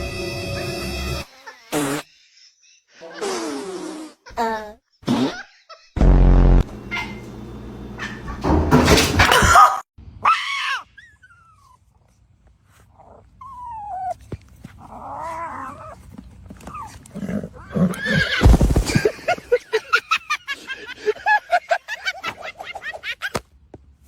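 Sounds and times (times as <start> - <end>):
dog whining: 6.8 - 7.3, 10.3 - 11.8, 13.0 - 18.4
noisy rustle: 18.4 - 19.2.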